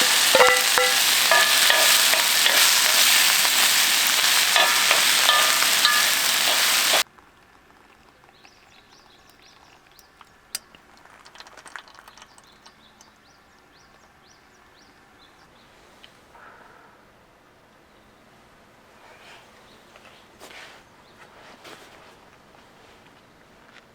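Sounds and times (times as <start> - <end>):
food sizzling in a pan: 0.0 - 7.1.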